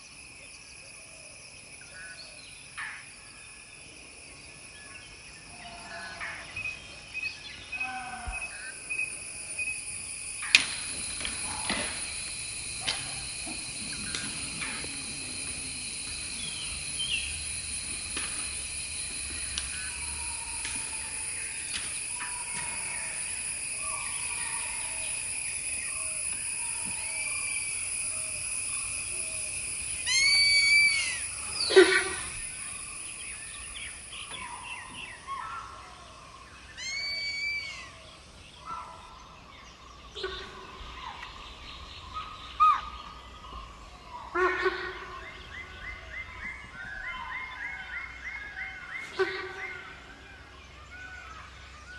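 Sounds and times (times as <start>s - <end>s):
high-pitched insect chorus: 0.0s - 51.9s
bird calls: 4.9s - 51.9s
sharp downward-sweeping bird call: 9.6s - 35.2s, 36.8s - 38.0s.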